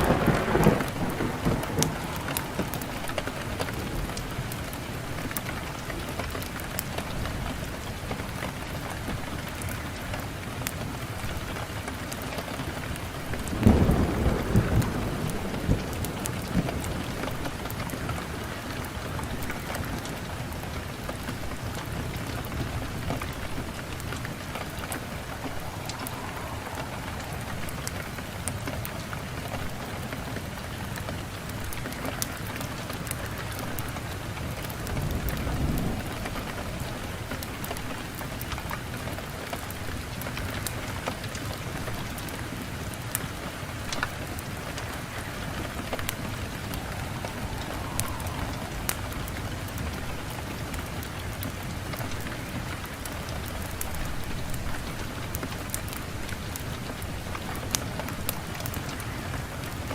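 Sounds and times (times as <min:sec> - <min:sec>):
low rush of flame: 0:00.0 - 0:06.9, 0:11.1 - 0:32.4, 0:43.8 - 0:56.3
wood fire crackling: 0:00.0 - 0:59.9.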